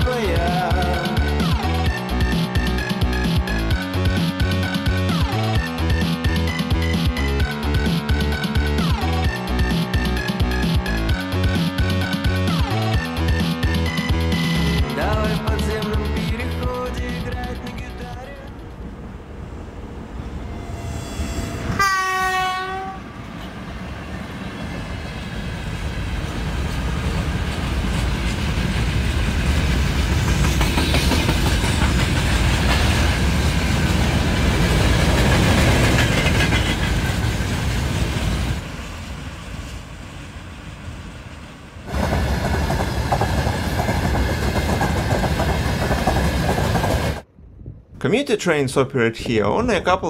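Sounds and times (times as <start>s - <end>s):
locomotive horn blast: 20.3s - 23.6s
freight wagons rumbling past: 23.0s - 47.2s
wagon wheels clattering on rails: 27.2s - 38.2s.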